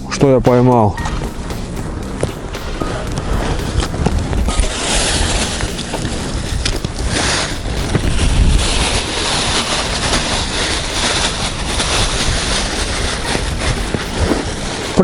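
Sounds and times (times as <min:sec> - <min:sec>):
strong wind on microphone: 0:03.0 - 0:15.0.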